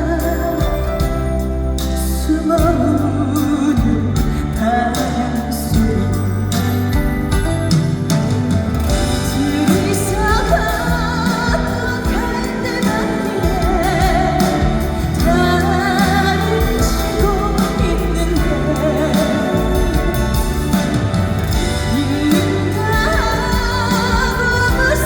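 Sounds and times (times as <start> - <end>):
woman singing with vibrato: 0.0 - 6.8, 8.9 - 25.0
band accompaniment: 0.0 - 25.0.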